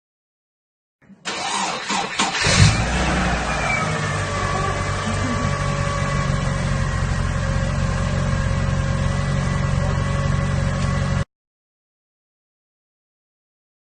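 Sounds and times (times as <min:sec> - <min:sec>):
car engine idling: 0:01.2 - 0:11.2.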